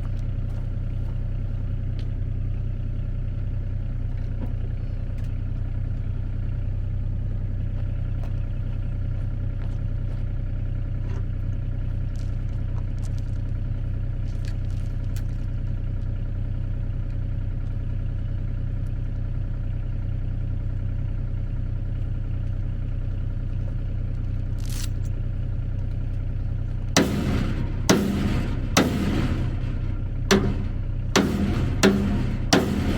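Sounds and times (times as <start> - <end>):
engine idling: 0.0 - 32.9
sharp clanks: 27.0 - 32.9.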